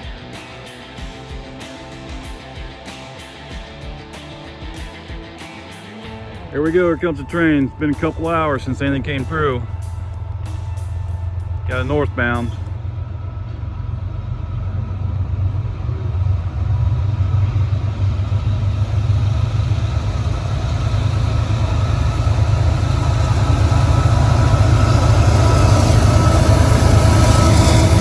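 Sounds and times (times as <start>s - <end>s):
diesel locomotive engine rumble: 5.9s - 28.0s.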